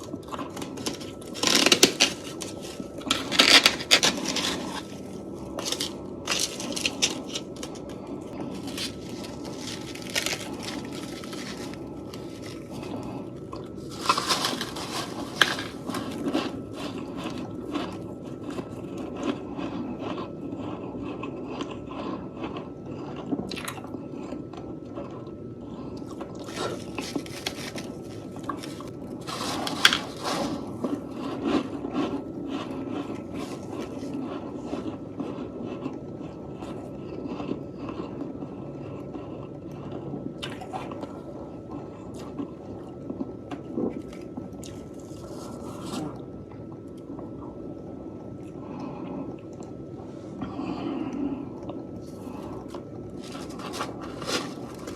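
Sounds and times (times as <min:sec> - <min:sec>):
person crunching frost: 0:00.0 - 0:22.7, 0:25.7 - 0:35.9, 0:43.9 - 0:46.2, 0:52.0 - 0:54.9
person chewing: 0:00.0 - 0:41.2, 0:48.4 - 0:54.9.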